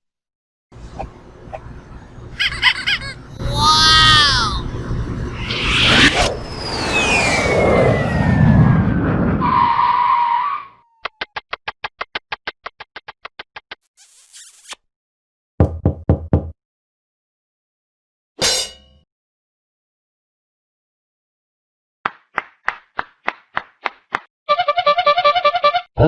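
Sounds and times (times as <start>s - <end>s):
falling whistle: 5.5s - 11.0s
fast run of clicks: 11.0s - 13.8s.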